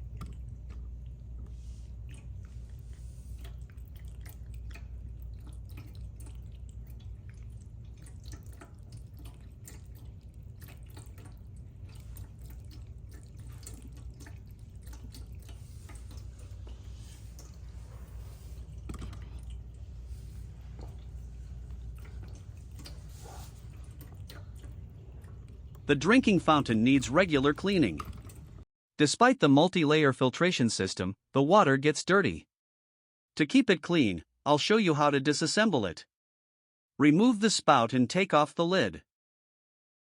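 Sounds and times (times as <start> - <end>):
steady low hum: 0.0 - 28.6
water trickling and dripping: 0.0 - 28.6.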